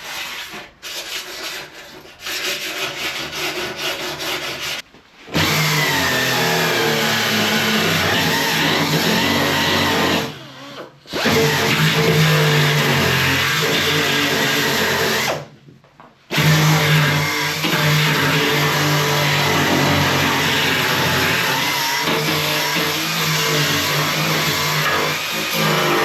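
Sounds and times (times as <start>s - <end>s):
power tool stripping metal panel: 5.3s - 10.4s, 11.1s - 15.4s, 16.3s - 26.0s.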